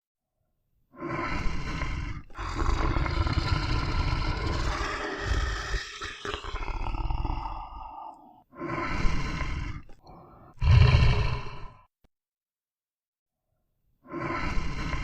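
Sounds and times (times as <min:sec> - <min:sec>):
lion roaring: 0:02.3 - 0:08.2, 0:10.5 - 0:11.8.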